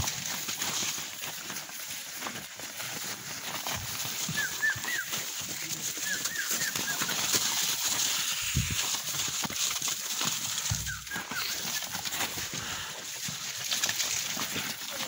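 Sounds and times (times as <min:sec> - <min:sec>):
livestock yard ambience hiss: 0:04.2 - 0:13.2.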